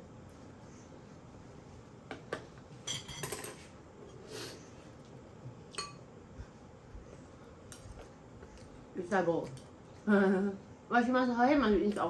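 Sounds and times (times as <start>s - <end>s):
dishes and cutlery clinking: 2.3s - 3.7s, 5.7s - 6.1s.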